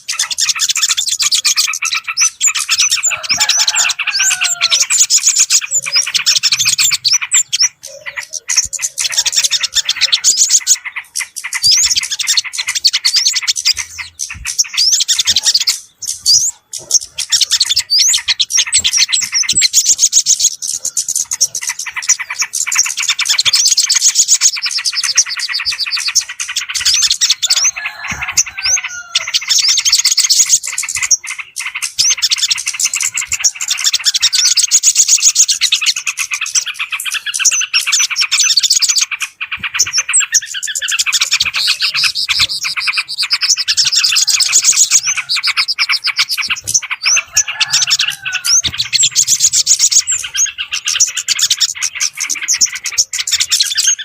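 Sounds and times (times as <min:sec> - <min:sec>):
small songbirds chirping: 0:00.0 - 0:54.0.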